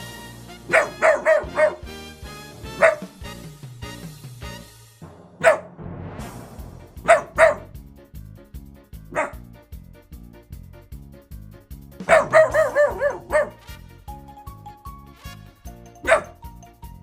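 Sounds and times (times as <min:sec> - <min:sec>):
background music with steady beat: 0:00.0 - 0:17.0
dog barking: 0:00.7 - 0:01.8, 0:02.7 - 0:03.1, 0:05.4 - 0:05.7, 0:07.0 - 0:07.7, 0:09.1 - 0:09.4, 0:12.1 - 0:13.6, 0:16.0 - 0:16.4.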